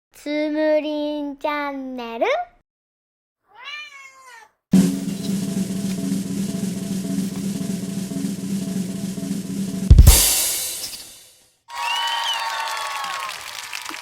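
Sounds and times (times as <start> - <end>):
drum roll: 4.7 - 11.2
bass drum thump: 4.8 - 11.0
cymbal crash ringing: 4.8 - 11.3.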